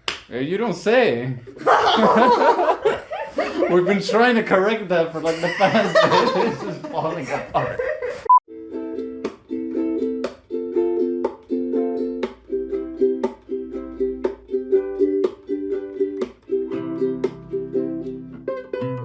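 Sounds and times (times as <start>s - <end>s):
acoustic string instrument strumming: 8.5s - 19.0s.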